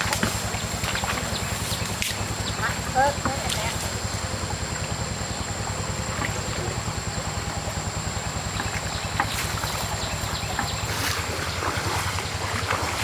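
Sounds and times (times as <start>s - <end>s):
motor running with low pulsing: 0.0s - 13.0s.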